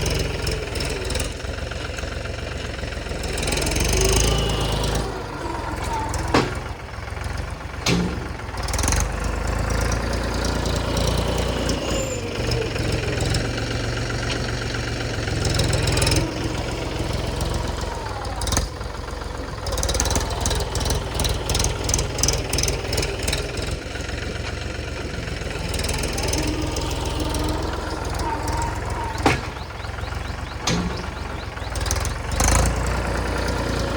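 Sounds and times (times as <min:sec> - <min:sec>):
tractor diesel engine under load: 0:00.0 - 0:33.9
knocks and clatter: 0:05.8 - 0:09.1, 0:28.1 - 0:33.0.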